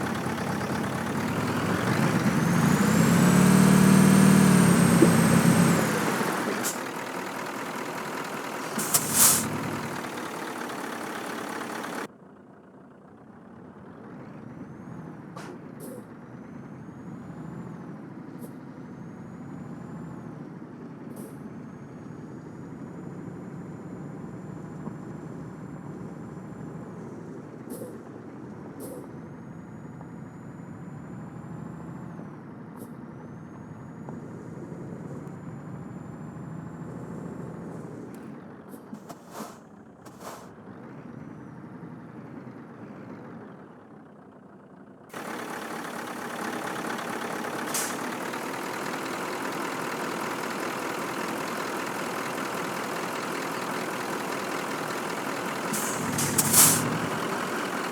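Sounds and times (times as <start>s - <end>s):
diesel truck engine running: 0.0s - 57.9s
short sharp hisses: 8.7s - 9.6s, 39.0s - 40.5s, 47.6s - 48.1s, 55.7s - 57.0s.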